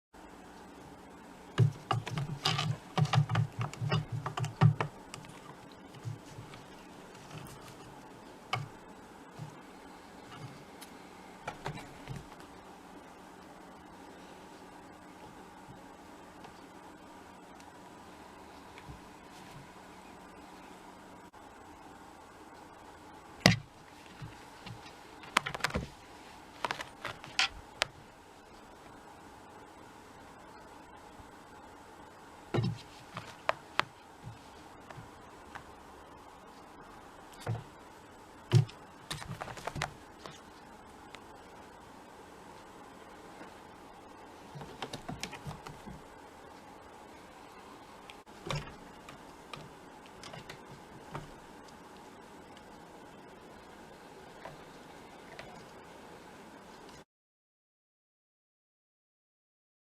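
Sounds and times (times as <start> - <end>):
cat thumps and claw clicks: 44.6 - 46.0.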